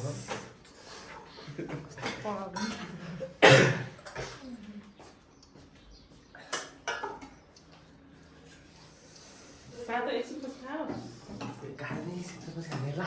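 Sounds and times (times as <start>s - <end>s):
tableware clinking: 6.4s - 7.2s.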